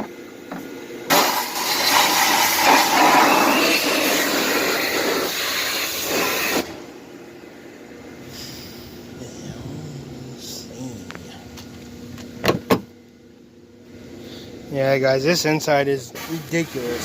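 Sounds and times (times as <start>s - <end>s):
pressure washer spraying water: 1.1s - 6.7s, 16.2s - 17.0s.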